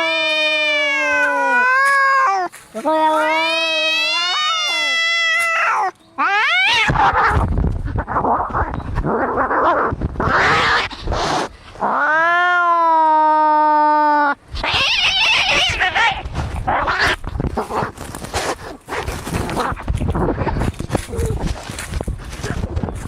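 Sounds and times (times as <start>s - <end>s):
cat yowling: 0.0s - 7.4s, 11.8s - 17.2s
cats growling and hissing: 0.0s - 22.9s.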